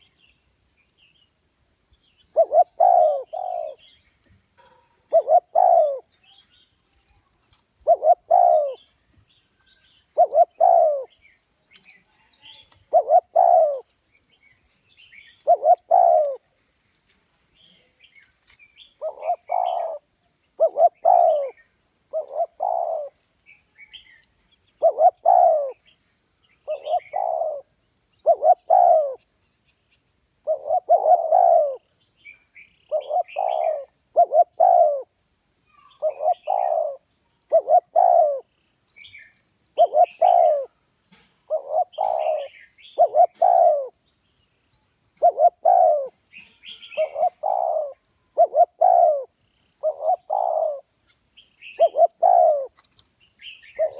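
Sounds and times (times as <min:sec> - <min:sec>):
small birds chirping: 0:00.0 - 0:53.9
dove cooing: 0:02.3 - 0:04.0, 0:04.6 - 0:06.3, 0:07.5 - 0:08.9, 0:09.6 - 0:13.9, 0:15.2 - 0:16.5, 0:19.0 - 0:25.9, 0:26.6 - 0:29.3, 0:30.4 - 0:32.0, 0:32.9 - 0:35.2, 0:35.9 - 0:38.5, 0:39.1 - 0:40.8, 0:41.4 - 0:44.0, 0:45.2 - 0:51.0, 0:51.6 - 0:53.0, 0:53.6 - 0:53.9.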